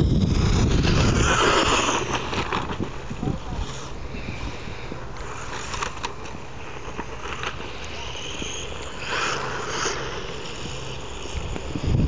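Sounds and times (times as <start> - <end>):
loud scrape: 0.0 - 2.8
small electric motor whine: 0.0 - 12.0
tyres scrabbling over rough ground: 0.4 - 3.8.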